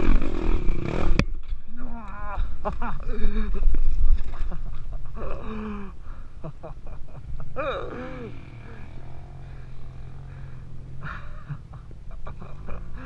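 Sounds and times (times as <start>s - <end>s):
dirt bike engine running: 0.0s - 1.4s, 7.9s - 13.0s.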